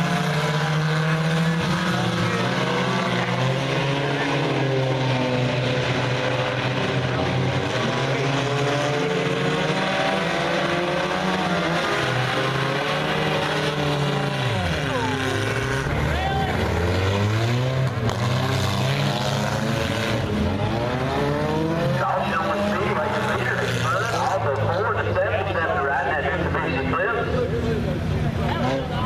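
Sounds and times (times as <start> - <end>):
race car engines: 0.0 - 29.0
race car passing by: 0.0 - 29.0.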